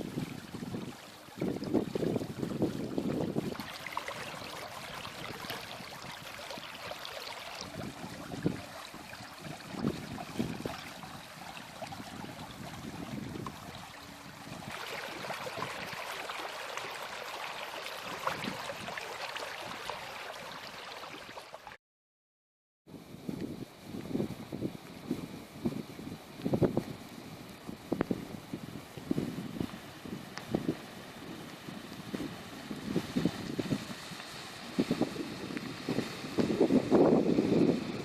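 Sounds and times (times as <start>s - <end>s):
rushing floodwater: 0.0s - 21.8s.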